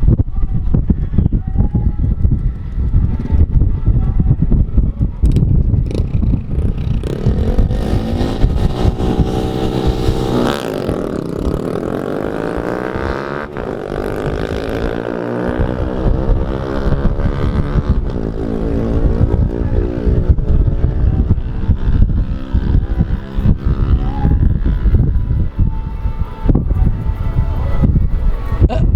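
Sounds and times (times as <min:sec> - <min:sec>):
car engine at full throttle: 0:05.3 - 0:27.2.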